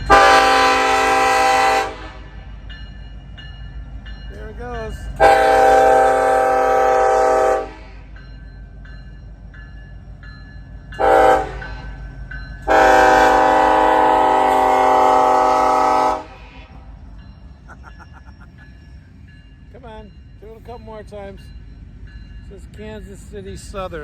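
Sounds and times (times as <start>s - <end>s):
locomotive air horn blasts: 0.0s - 2.4s, 5.2s - 8.0s, 11.0s - 11.9s, 12.7s - 16.9s
train rumbling: 0.0s - 24.0s.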